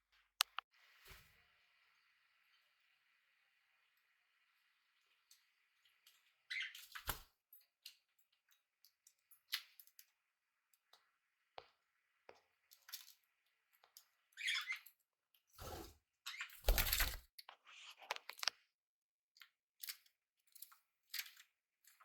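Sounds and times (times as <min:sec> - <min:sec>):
birds chirping: 0:05.0 - 0:07.1, 0:14.3 - 0:14.9.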